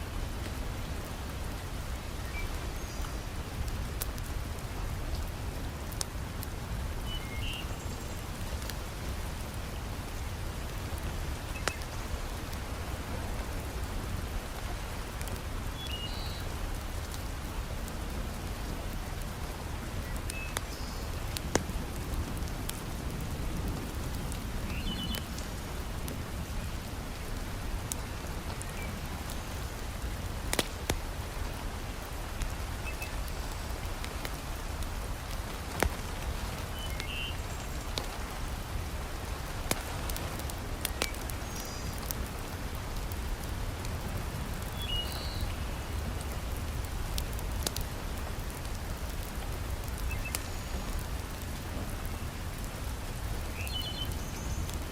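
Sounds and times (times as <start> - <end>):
heavy rain pattering: 0.0 - 54.9
wood fire crackling: 0.0 - 54.9.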